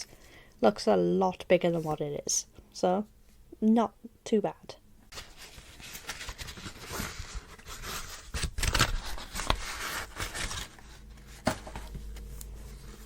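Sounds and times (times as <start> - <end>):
books and paper packaging rustling: 5.1 - 13.0.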